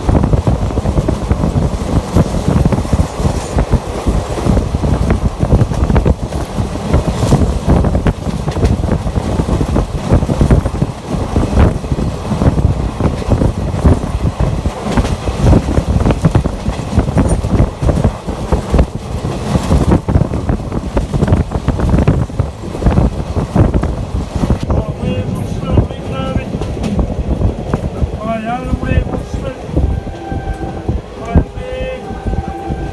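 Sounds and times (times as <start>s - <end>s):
knocks and rattles: 0.0s - 24.7s
train wheels rumbling on rails: 0.0s - 32.9s
wind buffeting microphone: 0.0s - 32.9s.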